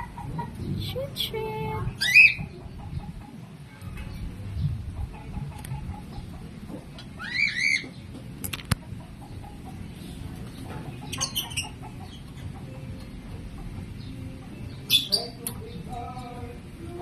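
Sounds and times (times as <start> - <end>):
lovebirds chirping: 0.0 - 8.3, 9.0 - 17.0.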